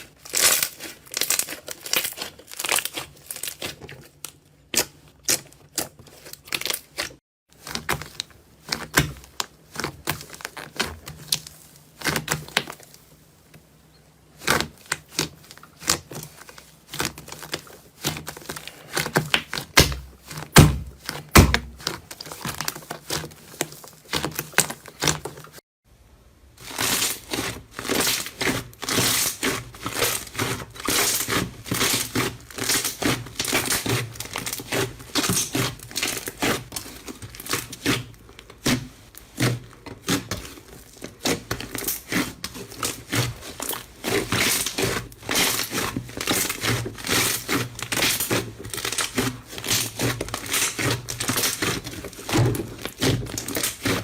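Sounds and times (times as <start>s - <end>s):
slime crackling and popping: 0.0s - 13.0s, 26.6s - 54.0s.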